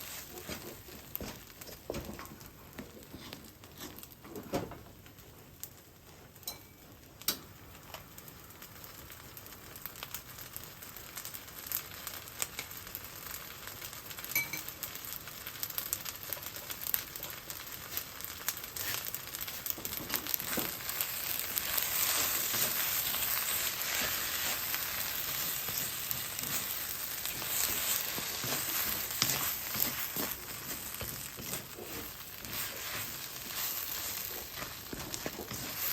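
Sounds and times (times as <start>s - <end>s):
rice sizzling in a frying pan: 0.0s - 35.9s.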